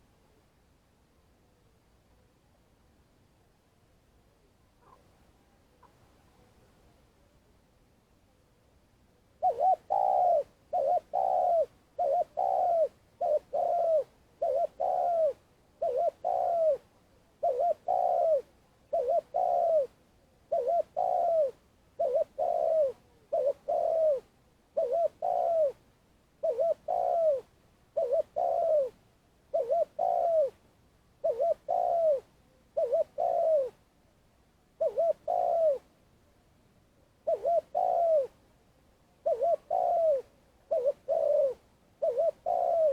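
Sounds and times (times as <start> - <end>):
dove cooing: 4.8 - 5.1, 9.4 - 25.8, 26.4 - 30.6, 31.2 - 33.8, 34.8 - 35.9, 37.2 - 38.4, 39.2 - 42.9.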